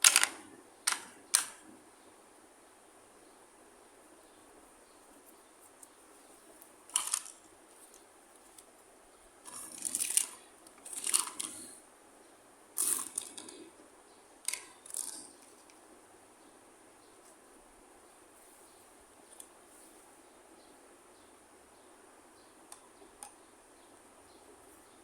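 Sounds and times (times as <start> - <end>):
plastic toy packaging crinkling: 6.9 - 7.4, 9.5 - 11.6.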